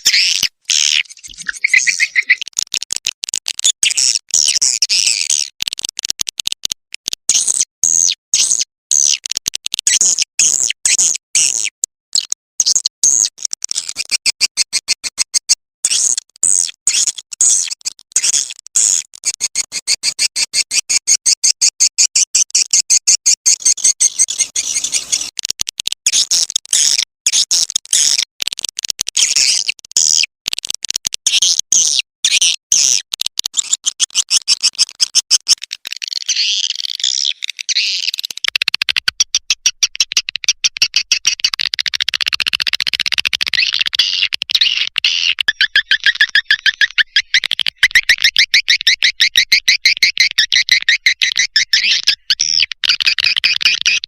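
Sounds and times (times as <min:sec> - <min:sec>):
swiftlet twittering through speaker: 0:00.0 - 0:02.4.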